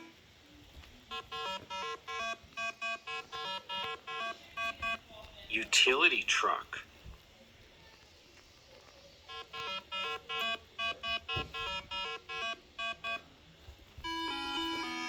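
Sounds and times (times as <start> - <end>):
background music with held notes: 14.0 - 15.0.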